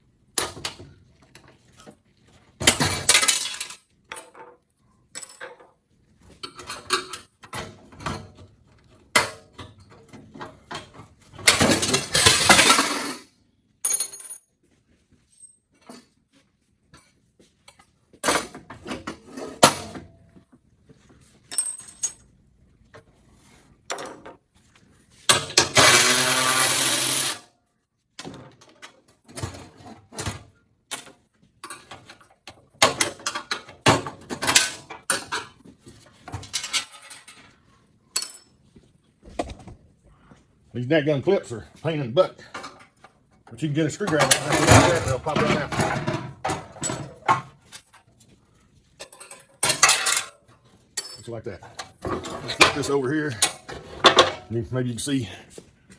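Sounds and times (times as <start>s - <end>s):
power tool running: 25.8s - 27.4s
clicks and knocks of tools: 49.0s - 54.5s.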